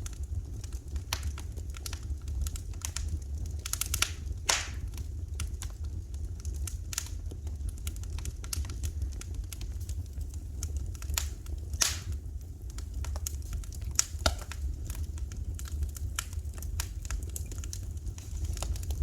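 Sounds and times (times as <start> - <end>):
wood fire crackling: 0.0 - 19.0
low rumble: 8.7 - 19.0.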